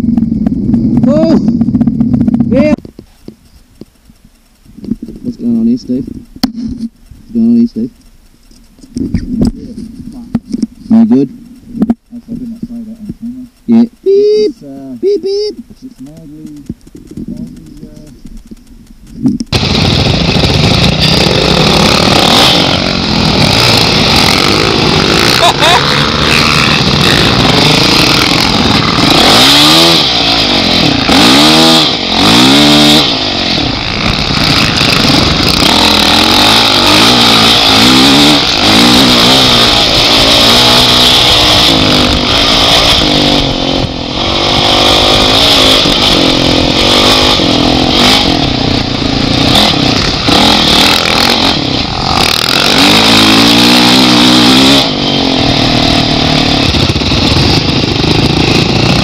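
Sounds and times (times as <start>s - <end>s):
motorcycle engine revving: 0.0s - 59.0s
steady hiss: 2.8s - 19.6s.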